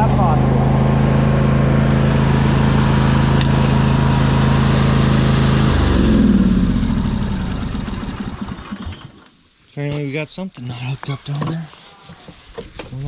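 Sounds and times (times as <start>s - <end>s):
riding lawn mower engine running: 0.0s - 9.3s.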